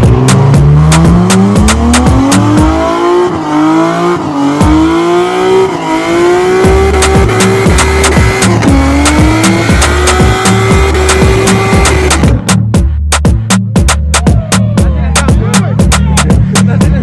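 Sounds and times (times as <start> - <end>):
car engine revving hard: 0.0 - 12.5
music beat: 0.0 - 17.0.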